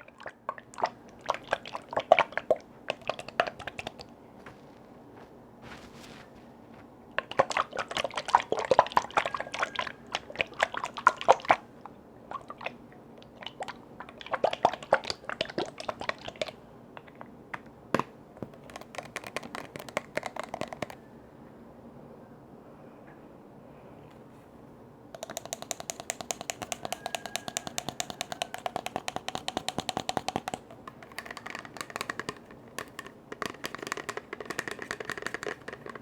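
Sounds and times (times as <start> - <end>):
crackling clicks on containers: 0.0 - 11.6, 15.1 - 21.0, 25.2 - 36.0.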